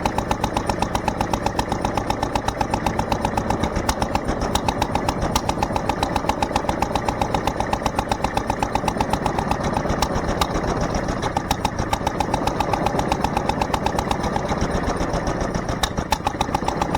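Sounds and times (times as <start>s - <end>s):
stationary engine running: 0.0s - 16.9s.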